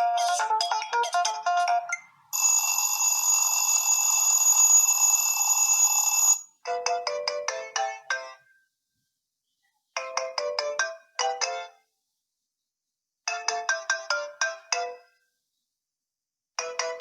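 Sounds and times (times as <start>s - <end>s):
electronic ringtone melody: 2.4s - 8.4s.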